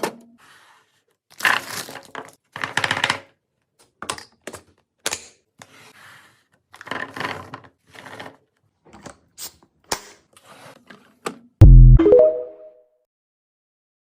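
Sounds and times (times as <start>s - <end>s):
loud music: 11.6s - 12.7s.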